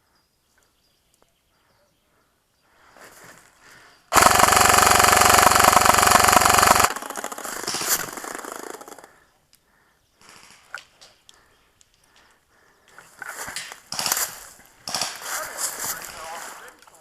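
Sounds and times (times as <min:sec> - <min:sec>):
quieter gunfire rattle: 0:04.1 - 0:09.1, 0:13.9 - 0:15.4
toy machine gun rapid firing: 0:04.1 - 0:09.1.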